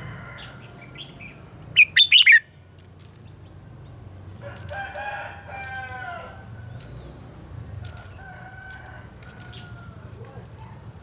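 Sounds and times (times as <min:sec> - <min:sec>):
rooster crowing: 0:00.0 - 0:00.7, 0:04.4 - 0:06.5.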